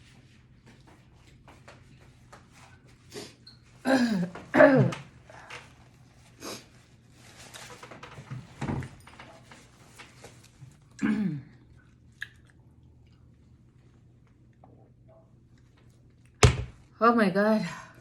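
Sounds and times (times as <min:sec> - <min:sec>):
mouth and chewing noises: 0:11.6 - 0:16.4.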